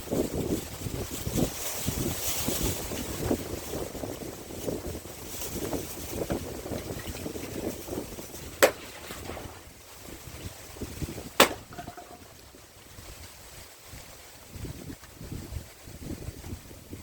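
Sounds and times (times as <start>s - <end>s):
wind noise on microphone: 0.0s - 17.0s
axe striking a log: 8.6s - 9.3s, 11.4s - 12.2s.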